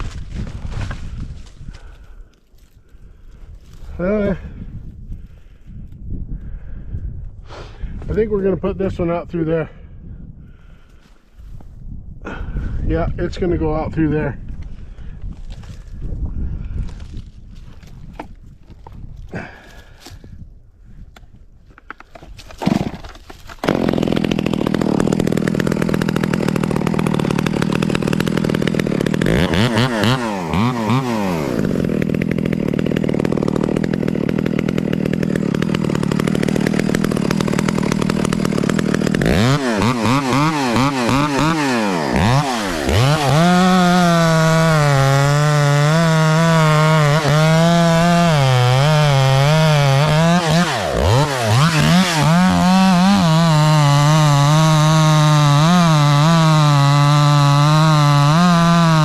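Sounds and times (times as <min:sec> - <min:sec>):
chainsaw running at high revs: 0:22.6 - 0:59.0.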